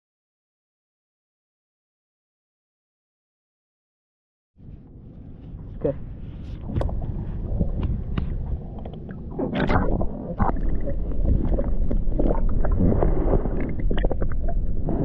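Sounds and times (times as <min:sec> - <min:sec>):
low rumbling: 0:04.6 - 0:15.0.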